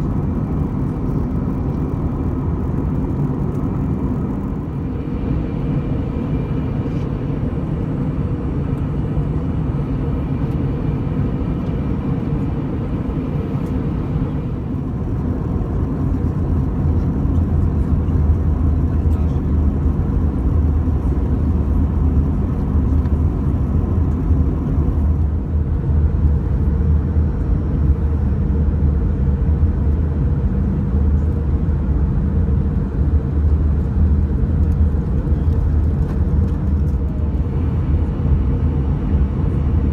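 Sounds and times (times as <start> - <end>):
deep rumble: 0.0 - 7.7, 13.2 - 28.2, 32.4 - 39.9
jet engines droning: 0.0 - 28.2, 31.8 - 39.9
air rushing over fuselage: 14.6 - 25.4.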